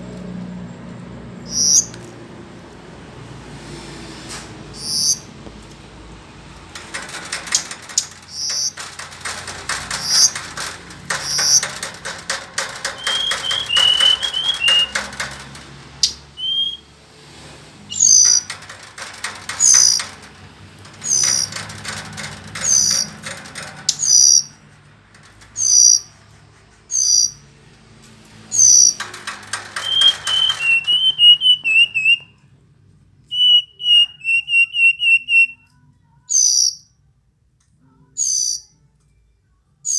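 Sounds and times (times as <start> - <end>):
fast buzzy bird chattering: 6.8 - 16.2
bird singing high whistles: 16.4 - 16.8, 33.4 - 35.6.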